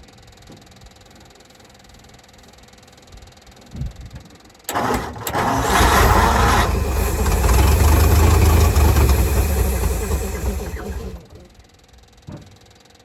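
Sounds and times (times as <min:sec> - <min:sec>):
truck engine starting and running: 0:04.7 - 0:11.6.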